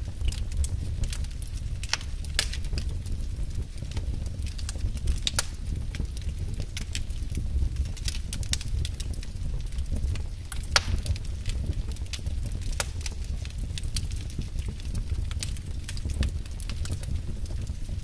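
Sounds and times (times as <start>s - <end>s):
wood fire crackling: 0.0s - 18.0s
sharp pops and snaps: 3.9s - 9.2s, 9.8s - 17.7s.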